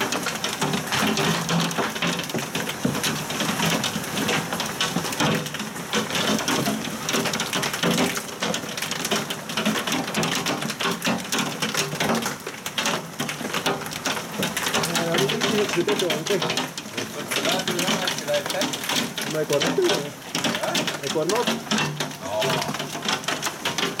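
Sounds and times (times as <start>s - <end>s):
heavy rain on hard surfaces: 0.0s - 24.0s.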